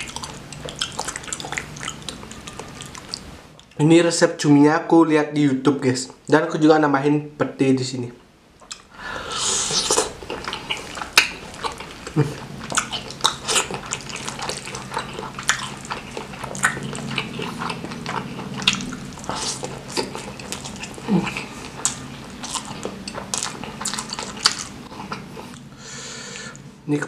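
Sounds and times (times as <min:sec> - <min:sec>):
wet chewing and lip smacking: 0:00.0 - 0:03.8, 0:08.6 - 0:08.9, 0:09.7 - 0:25.7
low steady hum: 0:00.0 - 0:27.0.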